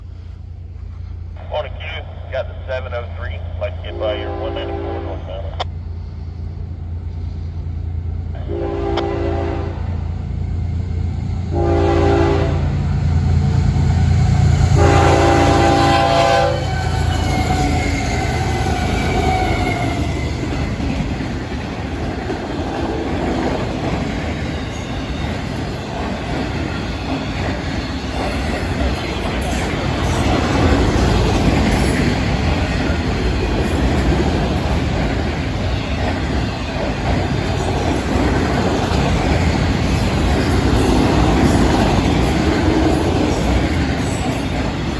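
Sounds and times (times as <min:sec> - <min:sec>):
locomotive engine rumble: 0:00.0 - 0:44.9
train horn blasts: 0:03.9 - 0:05.5, 0:08.4 - 0:10.1, 0:11.5 - 0:12.8, 0:14.5 - 0:20.0
train wheels clattering on rails: 0:12.8 - 0:44.9.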